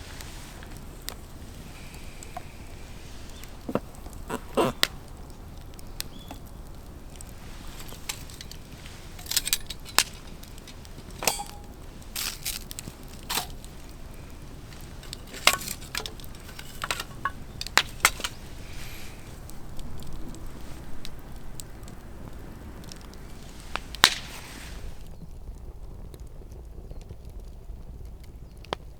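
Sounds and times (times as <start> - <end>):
sharp clicks knocks and clinks: 7.8 - 12.6.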